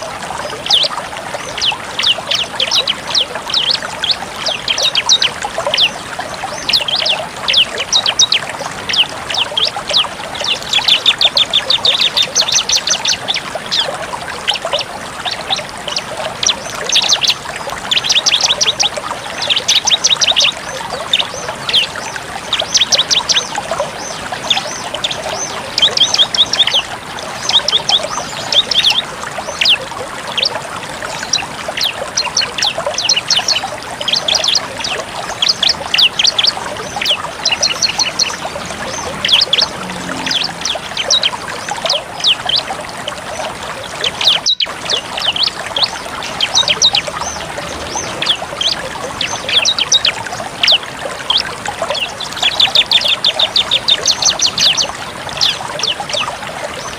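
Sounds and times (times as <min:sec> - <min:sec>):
trickling water: 0:00.0 - 0:56.9
bird singing fast high trills: 0:31.2 - 0:42.7.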